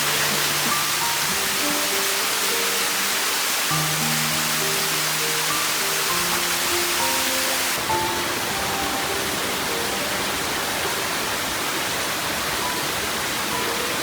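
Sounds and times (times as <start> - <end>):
waterfall roaring: 0.0 - 14.0.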